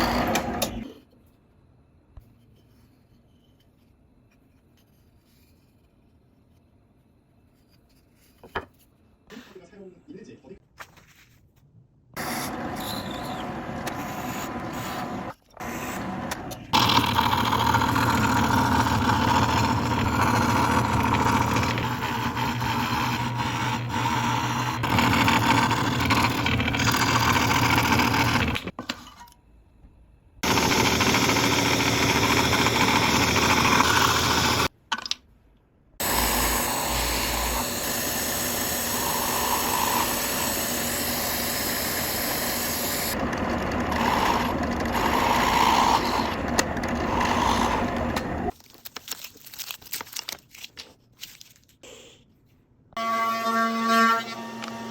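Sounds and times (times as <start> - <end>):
power tool working wood: 0.0 - 0.8, 12.2 - 28.7, 30.4 - 34.7, 36.0 - 48.5.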